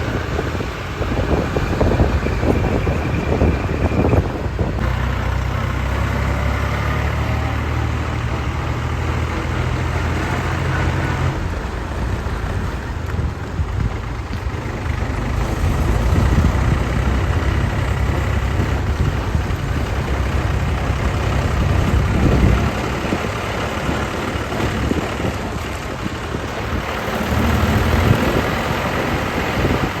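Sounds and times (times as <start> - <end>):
diesel tractor engine running: 0.0 - 30.0.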